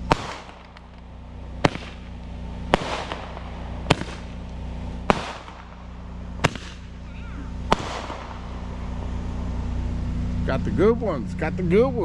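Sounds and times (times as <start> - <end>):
firework hiss: 0.0 - 10.5.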